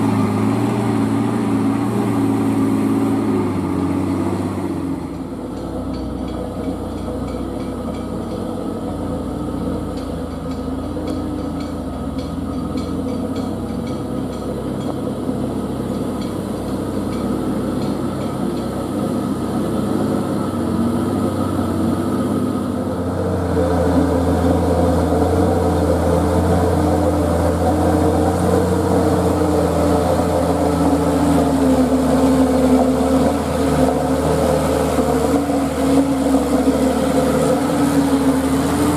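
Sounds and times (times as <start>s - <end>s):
heavy truck engine running: 0.0s - 38.9s.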